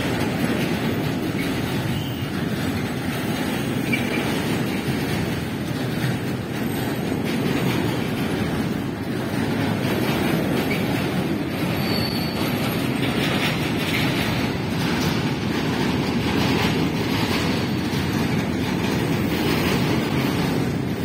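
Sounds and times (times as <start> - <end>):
freight train rumbling past: 0.0 - 21.0
faint high wheel squeal: 1.9 - 2.3, 11.6 - 13.0.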